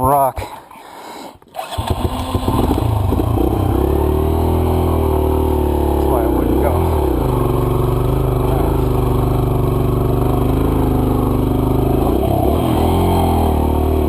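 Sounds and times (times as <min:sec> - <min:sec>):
dirt bike engine idling: 0:02.0 - 0:14.0.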